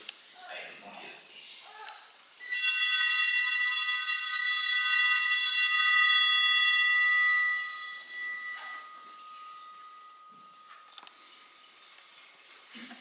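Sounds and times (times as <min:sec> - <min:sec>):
altar bells ringing: 0:02.4 - 0:12.0.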